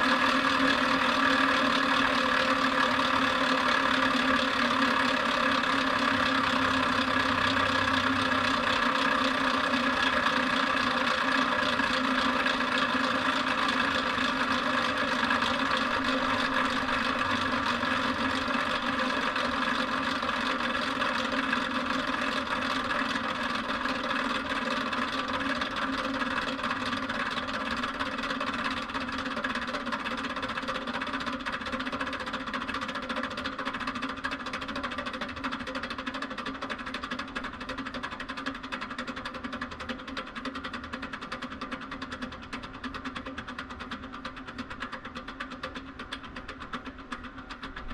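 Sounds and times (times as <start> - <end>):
motor spinning down: 0.0 - 27.7.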